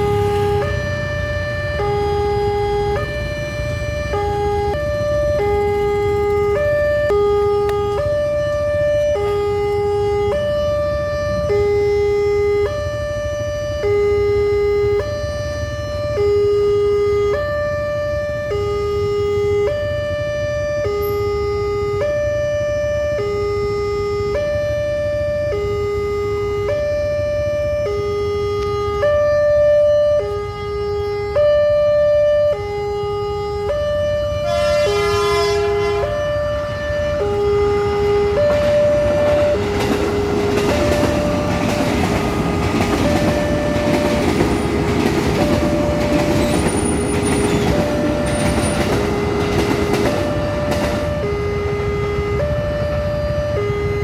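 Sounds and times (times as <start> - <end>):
passing train rumble: 0.0 - 16.2, 31.4 - 54.0
two-tone crossing alarm: 0.0 - 54.0
train horn blast: 34.4 - 37.2.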